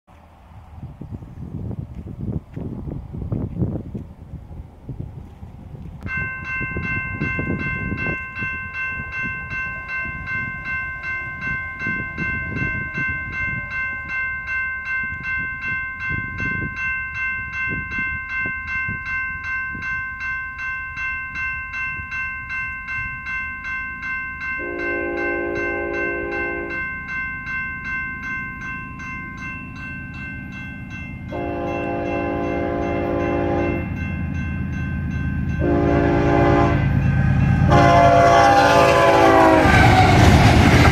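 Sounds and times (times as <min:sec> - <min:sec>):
train rumbling: 0:00.1 - 0:40.9
crossing warning bell ringing: 0:06.0 - 0:40.9
train horn blasts: 0:24.6 - 0:26.8, 0:31.3 - 0:34.0, 0:35.6 - 0:40.9.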